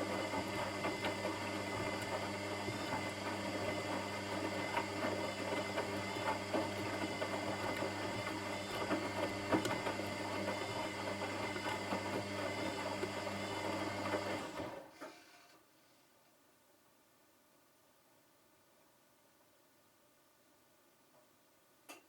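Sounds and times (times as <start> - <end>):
washing machine motor hum: 0.0 - 14.8.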